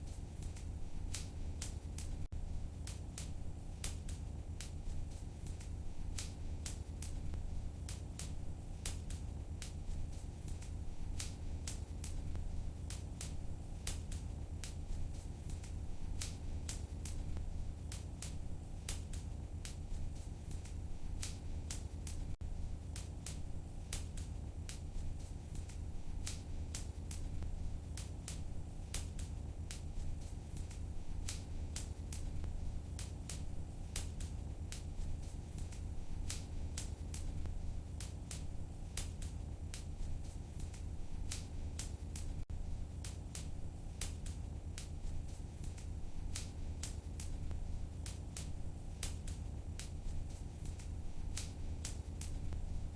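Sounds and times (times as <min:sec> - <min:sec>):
fire crackling and popping: 0:00.0 - 0:52.9.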